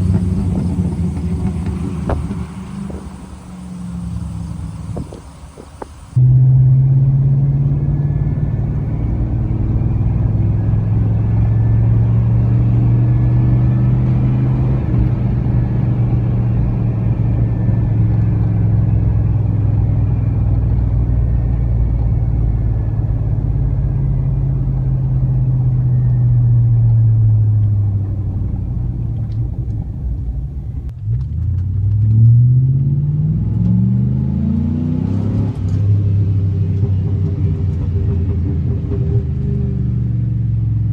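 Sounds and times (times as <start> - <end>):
truck exhaust drone: 0.0 - 31.2.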